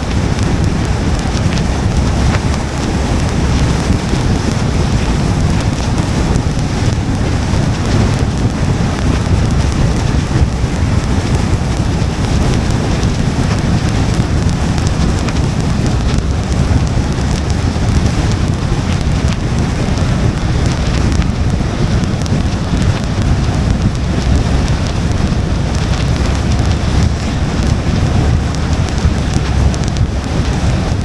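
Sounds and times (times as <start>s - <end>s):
rain and spray hiss: 0.0s - 31.0s
tyres rumbling on wet road: 0.0s - 31.0s.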